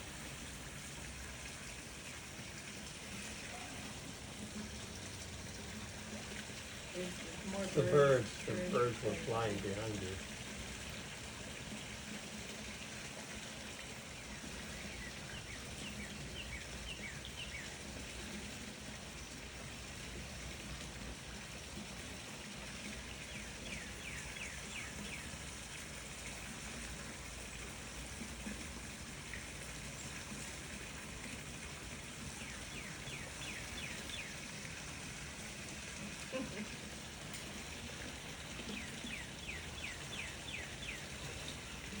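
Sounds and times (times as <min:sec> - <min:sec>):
small birds chirping: 0:14.0 - 0:18.2, 0:22.3 - 0:25.8, 0:32.2 - 0:34.6, 0:37.7 - 0:42.0.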